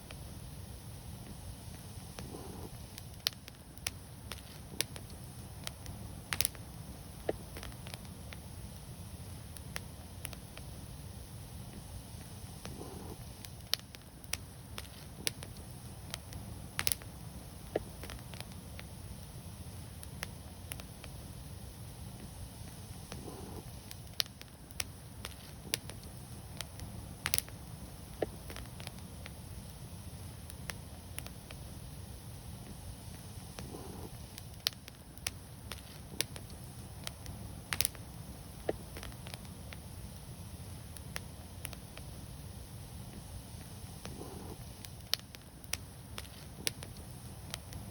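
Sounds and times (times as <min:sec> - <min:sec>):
wood fire crackling and popping: 0:00.0 - 0:47.9.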